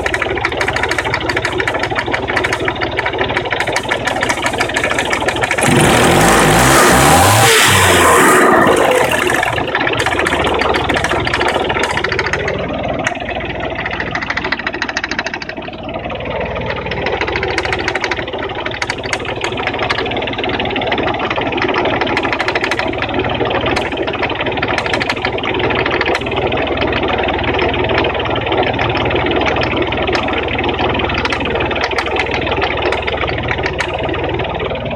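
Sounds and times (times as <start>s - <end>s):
engine revving: 0.0s - 14.5s
engine idling: 0.0s - 34.9s
fast even engine knocking: 0.0s - 34.9s.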